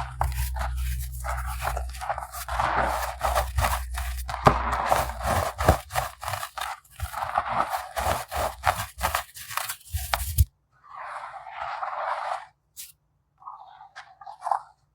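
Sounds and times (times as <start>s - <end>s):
baking soda pebbles crunching: 0.0s - 10.5s.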